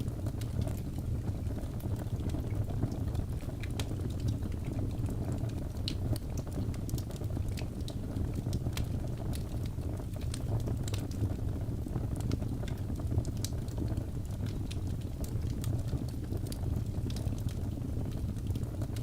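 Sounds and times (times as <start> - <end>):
logs burning with crackles: 0.0 - 19.0.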